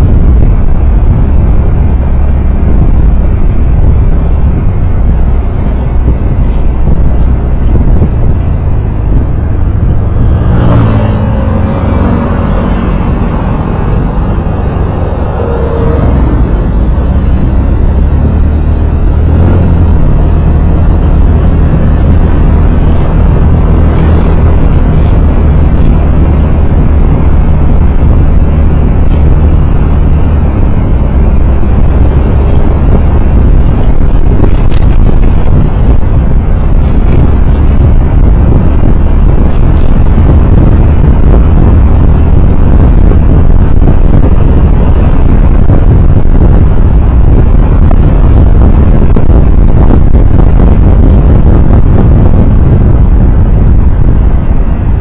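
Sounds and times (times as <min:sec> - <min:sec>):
vehicle road and engine noise: 0:00.0 - 0:55.0
rising engine note: 0:07.6 - 0:41.8.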